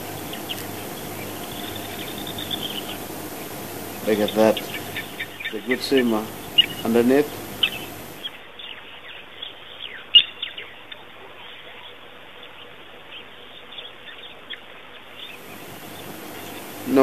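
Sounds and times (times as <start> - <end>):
birds chirping: 0.0 - 8.3, 15.3 - 17.0.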